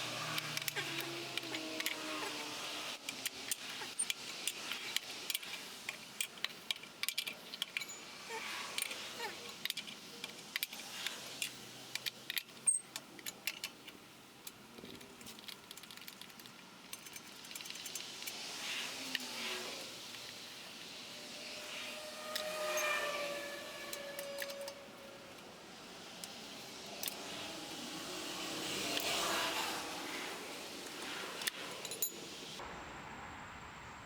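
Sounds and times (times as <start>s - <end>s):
metallic clicks of hand tools: 0.0s - 19.3s, 23.8s - 25.5s, 26.2s - 27.4s, 28.6s - 29.8s.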